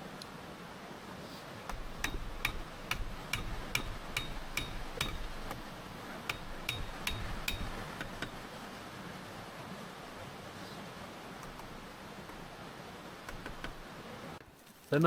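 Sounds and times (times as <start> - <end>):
sharp ringing knocks: 1.7 - 8.5, 11.4 - 12.6, 13.2 - 13.9.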